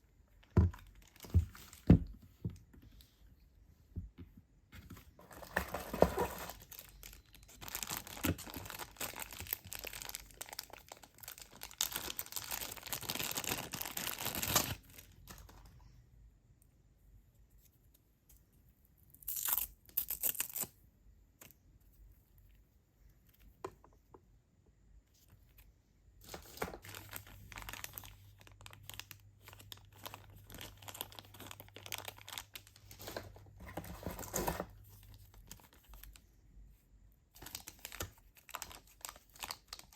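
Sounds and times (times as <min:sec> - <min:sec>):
packaging tearing and crinkling: 0:05.3 - 0:15.1, 0:19.2 - 0:20.7, 0:26.2 - 0:34.7, 0:37.4 - 0:39.9.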